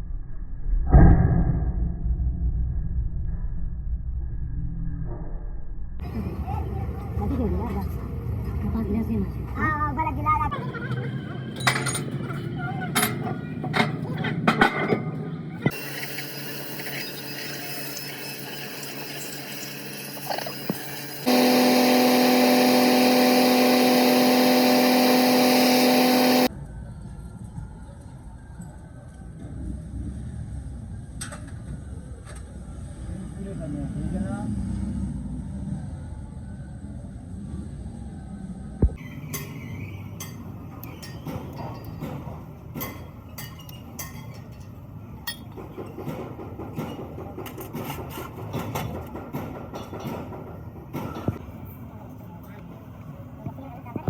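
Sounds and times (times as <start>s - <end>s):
metal tools clinking and scraping: 15.7s - 21.3s
machine humming with hiss: 15.7s - 26.5s.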